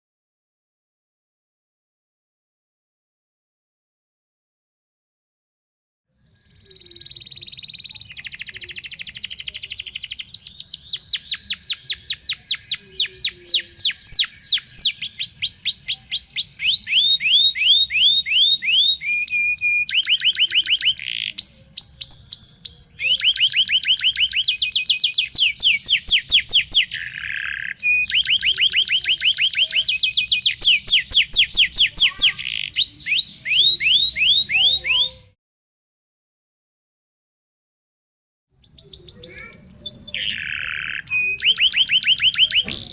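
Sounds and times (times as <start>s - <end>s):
canary singing trills: 6.1s - 35.4s, 38.5s - 42.9s.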